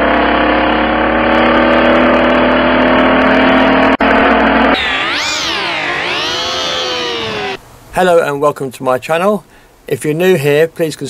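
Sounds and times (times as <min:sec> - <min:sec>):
car engine revving: 0:03.2 - 0:07.6.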